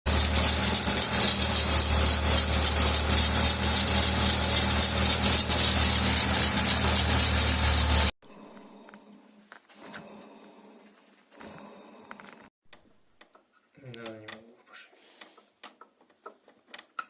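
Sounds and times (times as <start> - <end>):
car engine running: 0.1 - 8.2
belt whistle and rattling crackle: 0.4 - 8.1.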